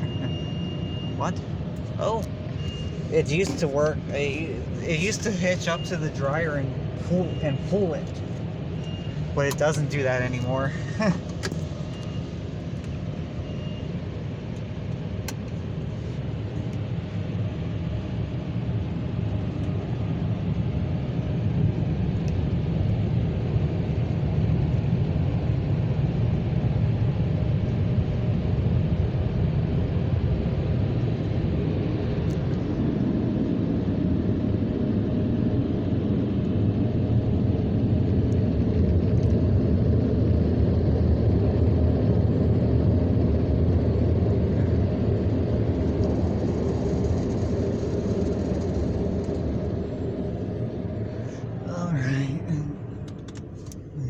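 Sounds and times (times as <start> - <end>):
car wash dryer blowers: 2.0 - 8.2.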